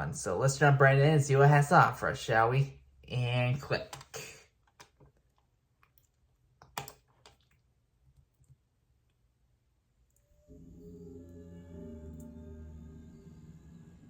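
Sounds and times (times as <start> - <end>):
computer mouse clicks: 6.6 - 7.5.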